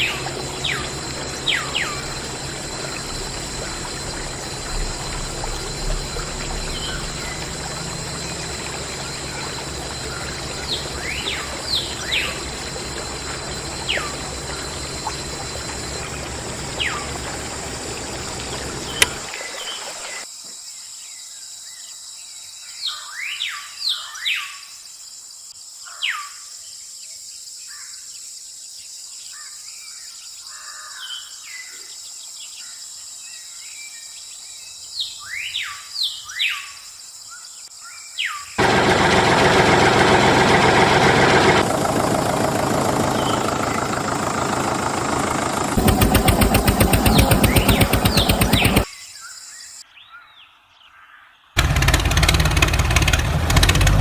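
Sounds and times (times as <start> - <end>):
small birds chirping: 0.0 - 20.2, 42.6 - 48.9.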